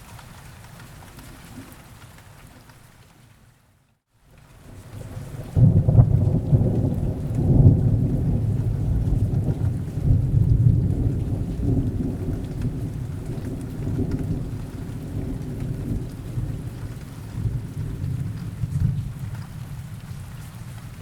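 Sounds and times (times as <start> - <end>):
steady rain: 0.0 - 21.0
low roll of thunder: 4.6 - 21.0.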